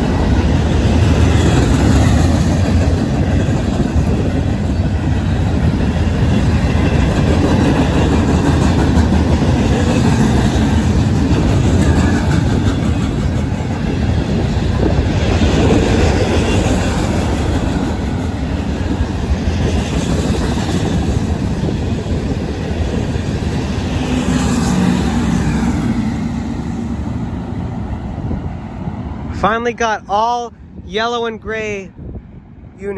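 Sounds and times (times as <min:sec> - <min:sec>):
freight train rumbling past: 0:00.0 - 0:32.9.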